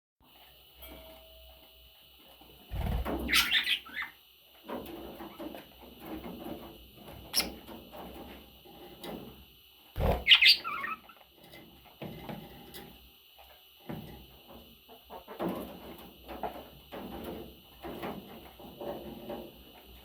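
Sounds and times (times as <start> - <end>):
budgies chattering: 3.2 - 4.2, 10.0 - 11.1
sharp bird chirp: 10.2 - 10.9.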